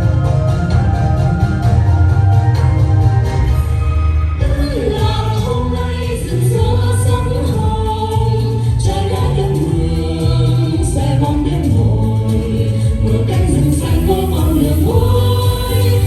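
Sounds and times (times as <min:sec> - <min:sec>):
loud backing music with bass: 0:00.0 - 0:16.0
group of voices singing: 0:04.4 - 0:16.0.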